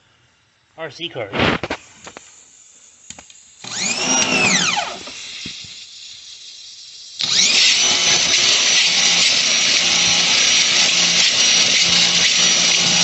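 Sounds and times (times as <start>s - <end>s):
loud hiss: 0.0s - 11.6s
power tool motor running: 3.6s - 13.0s.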